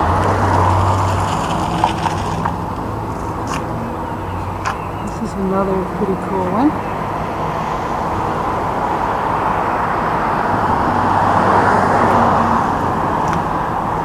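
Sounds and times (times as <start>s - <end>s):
road vehicle driving past: 0.0s - 14.0s.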